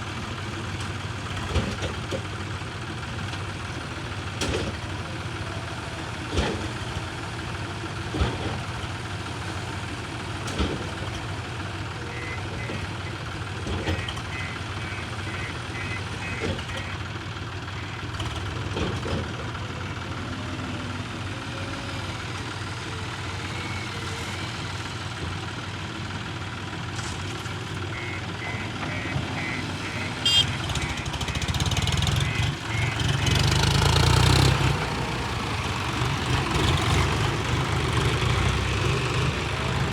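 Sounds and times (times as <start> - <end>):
diesel earthmoving machinery running: 0.0 - 39.9
reversing alarm beeping: 12.0 - 13.2, 13.8 - 17.0, 27.9 - 34.0.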